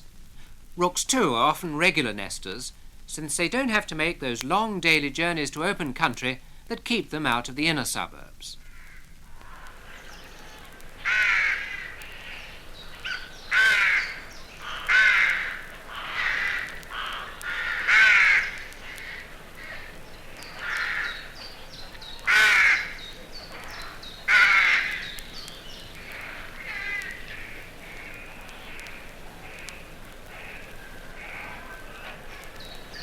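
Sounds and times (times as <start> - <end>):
rooks cawing: 8.6 - 33.0.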